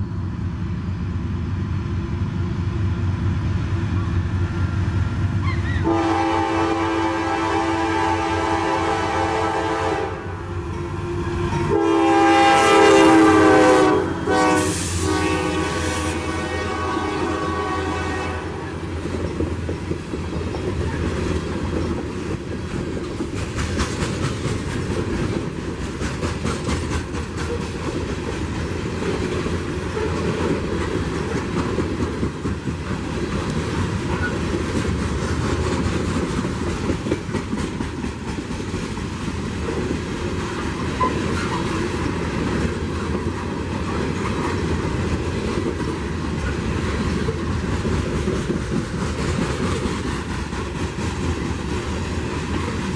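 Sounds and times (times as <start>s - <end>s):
train rumble: 0.0s - 52.9s
train wheels clicking over joints: 18.8s - 52.9s.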